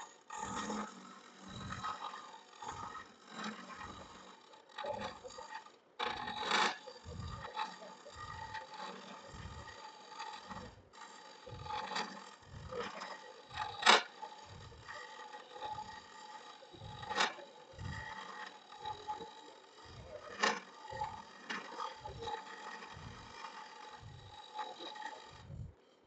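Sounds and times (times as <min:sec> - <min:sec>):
wood lathe cutting: 0:00.0 - 0:26.0
pulsing low rumble: 0:12.4 - 0:12.9, 0:14.5 - 0:14.9, 0:16.8 - 0:18.2, 0:22.9 - 0:23.4, 0:25.3 - 0:25.7.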